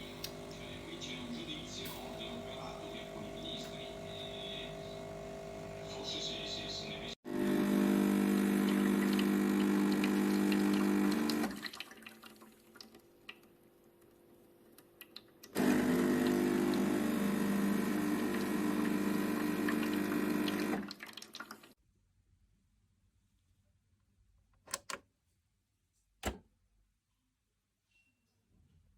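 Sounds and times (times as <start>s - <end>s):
espresso machine pump humming: 0.0s - 11.6s, 15.6s - 20.9s.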